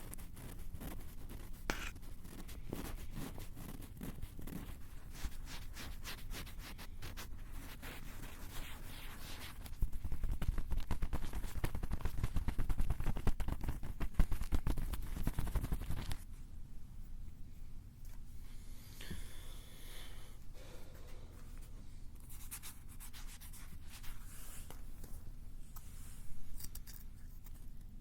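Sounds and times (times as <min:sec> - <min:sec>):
scratching and tapping on microphones: 0:00.0 - 0:07.3, 0:08.3 - 0:16.3.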